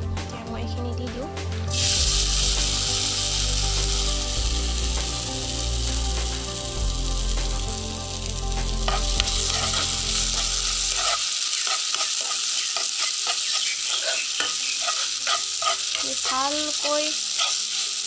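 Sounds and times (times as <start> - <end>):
sago sizzling in a pan: 1.7 - 18.0
spatula scraping a pan: 8.8 - 18.0.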